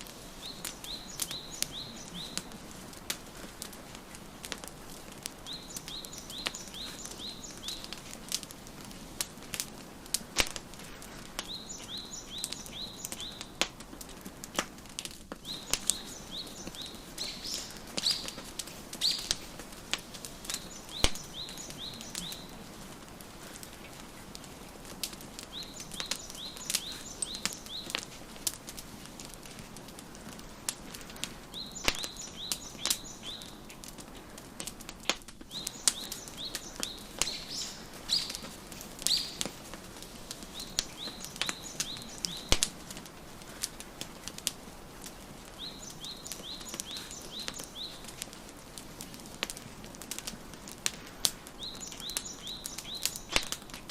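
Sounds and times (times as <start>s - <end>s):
wood fire crackling: 0.0s - 53.9s
songbird chirping: 0.1s - 4.2s, 4.9s - 8.5s, 11.0s - 13.6s, 15.4s - 28.2s, 29.8s - 34.0s, 35.4s - 43.5s, 44.7s - 48.4s, 51.5s - 53.8s.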